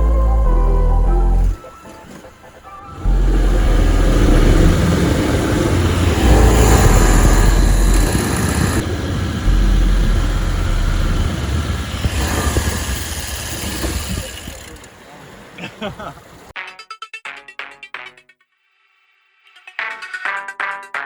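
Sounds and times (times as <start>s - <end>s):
mud motor engine rumbling: 0.0s - 16.5s.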